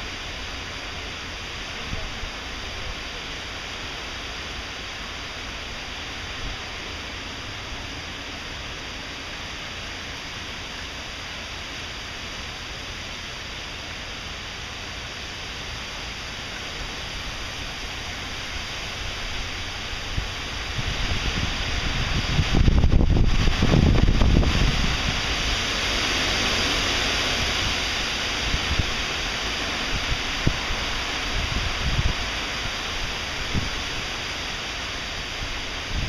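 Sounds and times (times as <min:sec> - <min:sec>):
heavy rain falling: 0:00.0 - 0:36.0
wind rumbling on microphone: 0:16.4 - 0:36.0.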